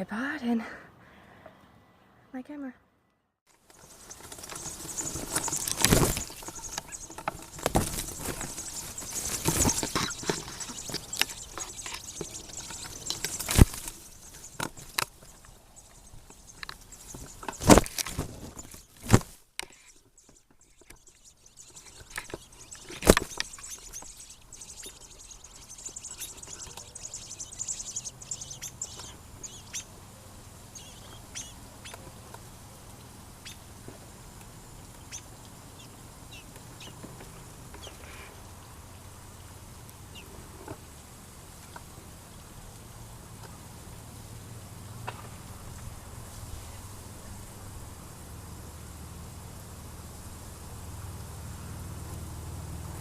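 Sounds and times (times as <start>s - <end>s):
high bird chirps: 3.6s - 32.0s.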